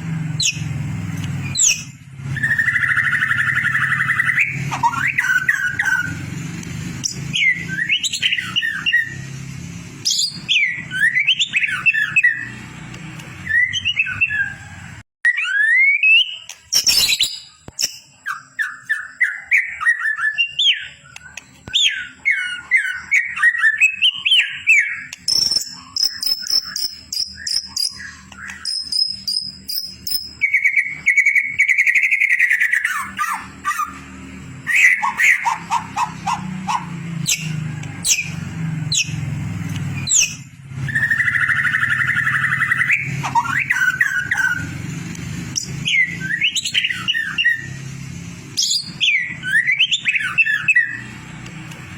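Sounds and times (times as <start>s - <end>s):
bird singing whistled phrases: 1.4s - 6.2s, 7.0s - 9.2s, 10.0s - 12.6s, 15.2s - 34.0s, 34.6s - 39.2s, 40.0s - 44.8s, 45.6s - 47.8s, 48.6s - 51.2s.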